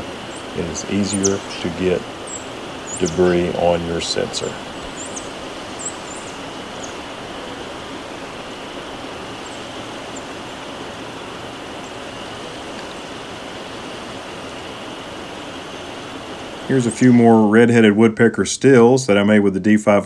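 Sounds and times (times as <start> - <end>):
outdoor background hiss: 0.0 - 20.0
high bird chirps: 0.3 - 7.5.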